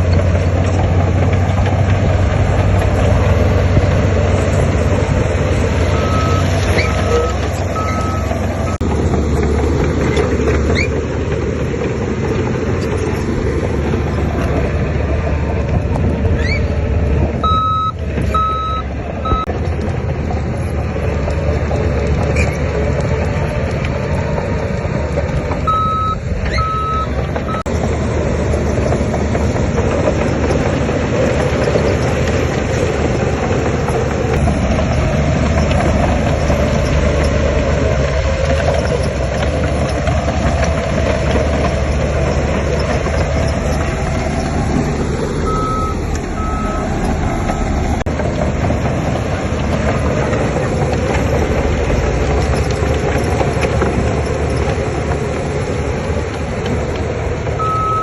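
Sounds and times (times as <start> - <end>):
heavy machinery diesel engines: 0.0 - 58.0
reversing alarm beeps: 5.9 - 8.8, 17.4 - 19.5, 25.7 - 27.7, 45.4 - 46.9, 57.6 - 58.0.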